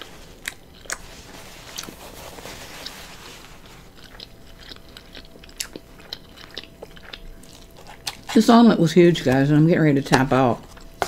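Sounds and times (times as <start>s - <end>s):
soft rustle: 1.0s - 4.0s
chewing and wet mouth clicks: 4.0s - 8.3s.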